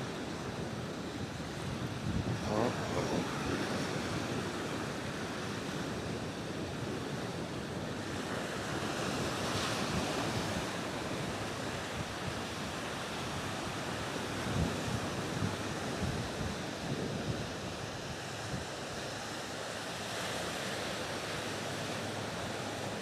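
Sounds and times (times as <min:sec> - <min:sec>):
wind buffeting microphone: 0:00.0 - 0:12.6
waves washing against shore: 0:00.0 - 0:23.0.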